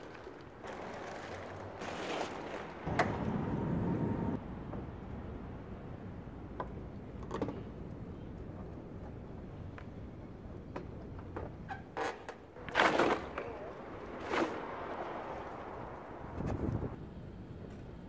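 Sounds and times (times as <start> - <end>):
plastic wrapping rustling: 0.0 - 2.9.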